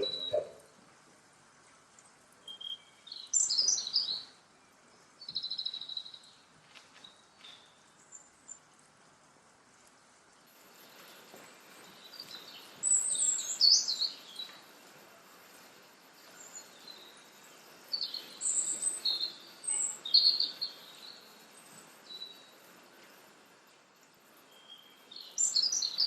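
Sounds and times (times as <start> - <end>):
bird chirping: 0.0 - 0.7, 2.4 - 6.4, 10.8 - 14.6, 16.2 - 22.6, 24.4 - 26.0
faint background hiss: 0.0 - 26.0.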